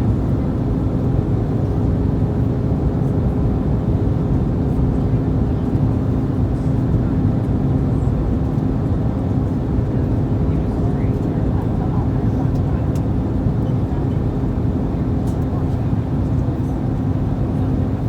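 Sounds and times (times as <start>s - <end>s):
airplane cabin airflow rush: 10.6s - 18.0s.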